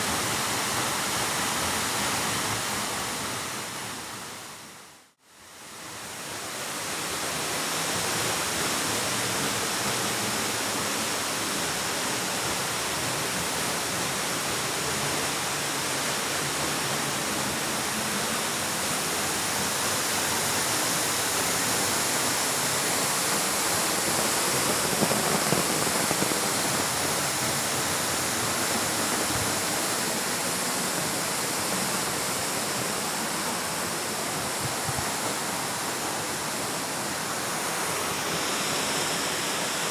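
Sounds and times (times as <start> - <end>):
waterfall rushing: 13.9 - 39.9.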